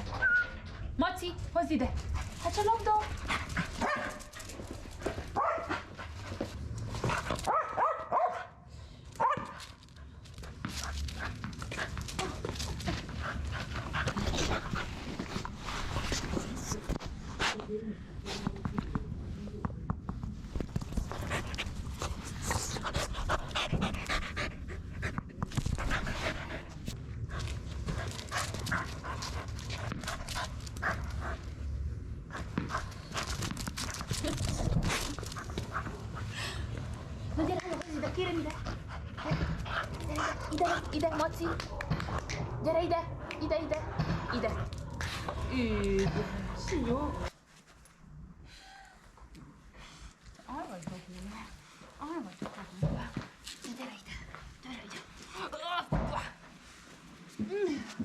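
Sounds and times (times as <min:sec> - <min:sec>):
dog whining and yipping: 0:00.0 - 0:00.7
dog panting: 0:10.3 - 0:16.9, 0:21.0 - 0:31.6, 0:32.3 - 0:47.3.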